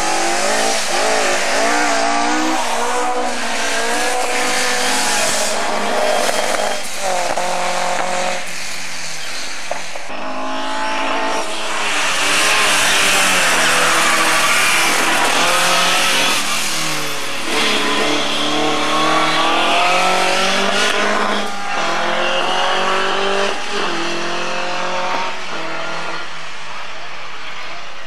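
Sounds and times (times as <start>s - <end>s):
rally car engine revving: 0.0s - 27.2s.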